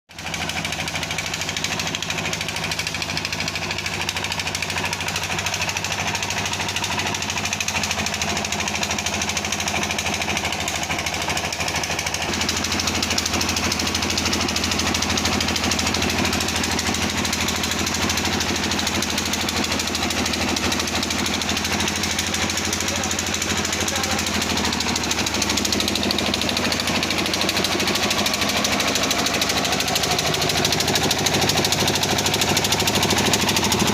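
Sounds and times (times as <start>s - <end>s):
washing machine hum and rattle: 0.1s - 33.9s.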